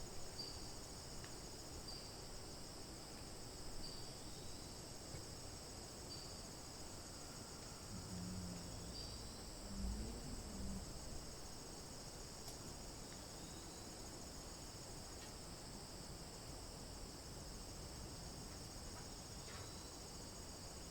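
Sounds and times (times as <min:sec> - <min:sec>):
insects chirping chorus: 0:00.0 - 0:20.9
brief low rumble: 0:07.9 - 0:11.4.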